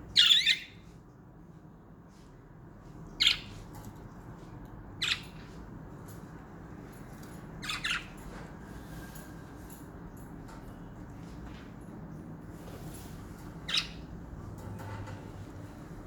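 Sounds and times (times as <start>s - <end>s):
soft bird chirps: 0.1s - 0.9s, 3.1s - 3.6s, 5.0s - 5.6s, 7.6s - 8.3s, 13.6s - 14.1s.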